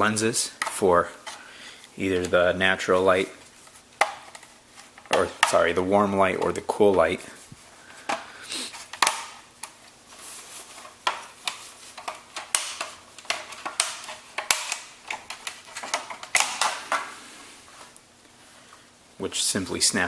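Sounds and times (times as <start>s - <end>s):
plastic clicks and rustling: 3.3s - 7.2s, 7.9s - 17.2s.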